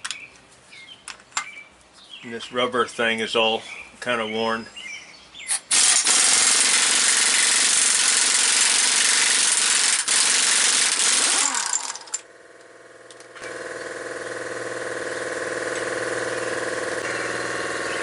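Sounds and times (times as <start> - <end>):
pneumatic impact wrench hammering: 5.5 - 18.0
steady motor hum: 6.2 - 18.0.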